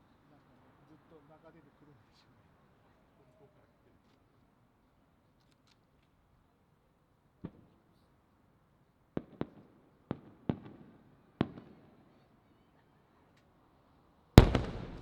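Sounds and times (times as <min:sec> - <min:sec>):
firework shells booming: 0:14.4 - 0:15.0.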